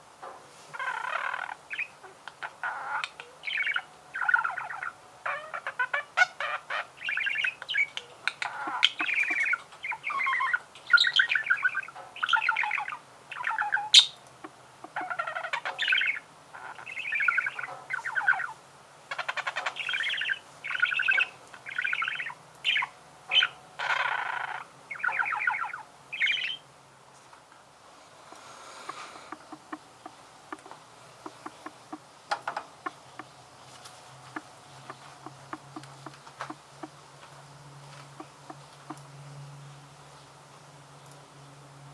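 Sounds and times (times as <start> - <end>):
budgerigar warbling and chattering: 0.8 - 26.6, 28.8 - 32.1, 34.3 - 37.0.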